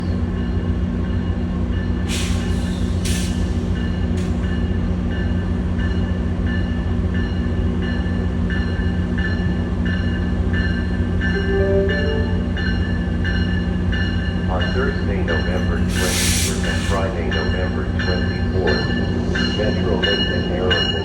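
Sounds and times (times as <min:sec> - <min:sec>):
diesel locomotive droning: 0:00.0 - 0:21.0
air hissing bursts: 0:02.1 - 0:03.7, 0:15.8 - 0:17.0
train bell ringing: 0:04.5 - 0:21.0.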